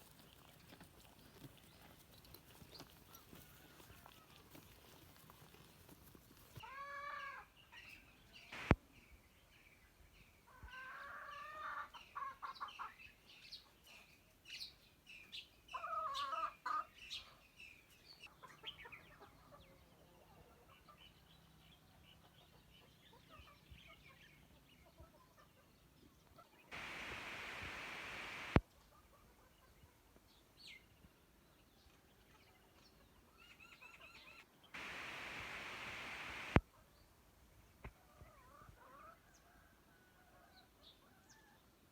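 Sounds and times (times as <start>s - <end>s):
birds calling and chirping: 26.7s - 28.6s.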